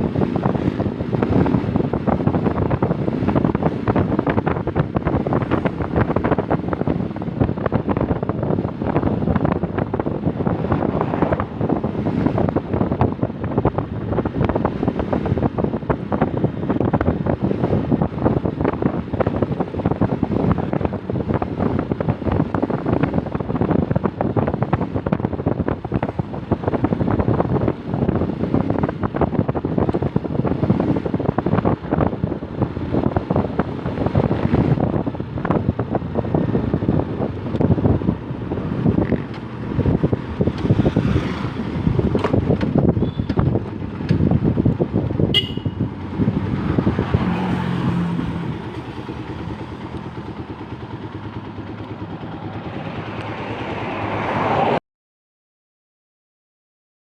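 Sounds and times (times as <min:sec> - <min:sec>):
wind buffeting microphone: 0:00.0 - 0:54.8.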